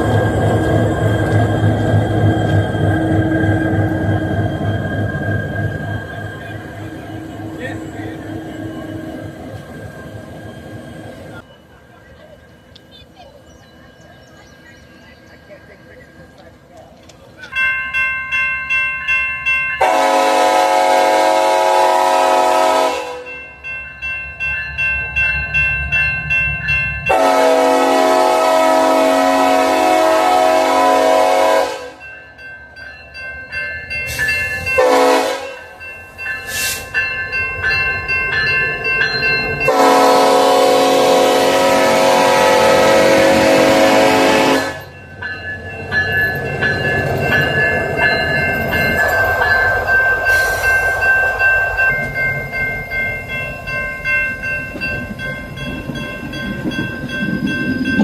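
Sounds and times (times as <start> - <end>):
locomotive air horn blasts: 19.8 - 23.3, 27.1 - 32.0, 34.8 - 35.7, 39.7 - 44.9.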